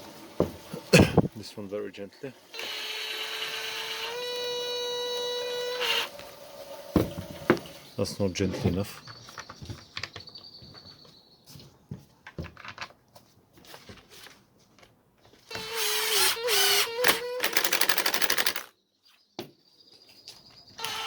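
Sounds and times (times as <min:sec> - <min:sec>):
cordless screwdriver driving screw: 0:02.6 - 0:06.2, 0:15.5 - 0:18.7, 0:20.8 - 0:21.0
screwdriver ratcheting clatter: 0:15.5 - 0:18.7.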